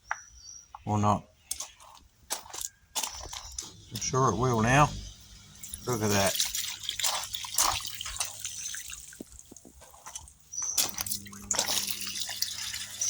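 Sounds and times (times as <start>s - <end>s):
water splashing and dripping: 3.0s - 13.0s
low steady hum: 3.5s - 9.5s, 10.6s - 13.0s.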